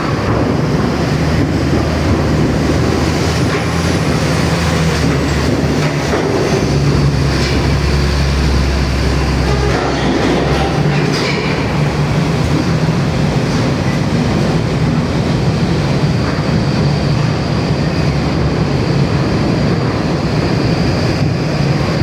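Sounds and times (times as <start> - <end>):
truck engine and road noise: 0.0 - 22.0.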